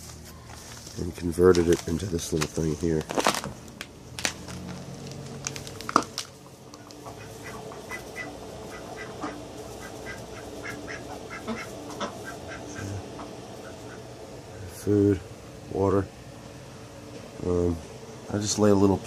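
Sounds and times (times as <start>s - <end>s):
ducks quacking softly: 6.8s - 14.1s.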